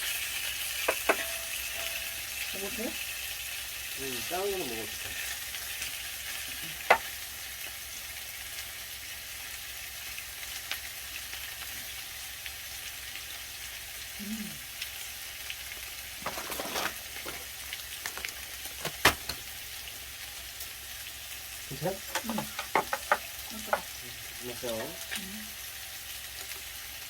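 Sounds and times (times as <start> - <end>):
meat sizzling in a pan: 0.0 - 27.0.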